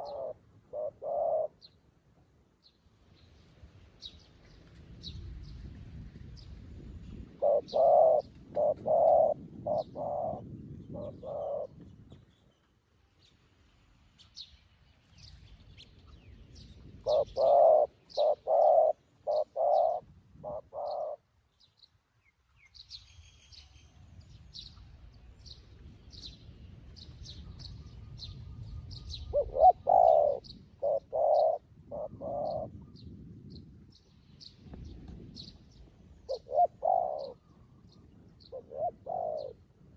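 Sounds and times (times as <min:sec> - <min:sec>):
dove cooing: 0:00.0 - 0:01.7, 0:07.4 - 0:11.8, 0:17.0 - 0:21.2, 0:29.3 - 0:32.8, 0:36.3 - 0:37.4, 0:38.5 - 0:39.7.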